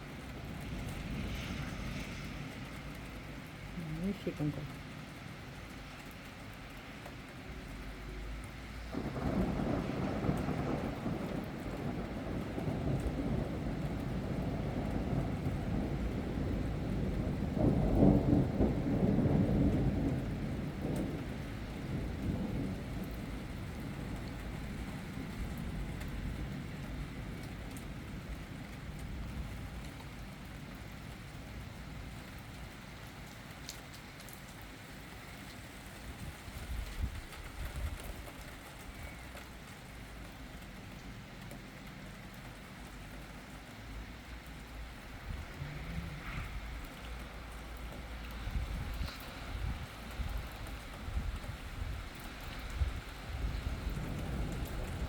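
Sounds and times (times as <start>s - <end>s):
thunder rumbling: 0.0s - 5.0s, 8.6s - 33.4s, 42.1s - 55.0s
steady rain: 0.0s - 55.0s.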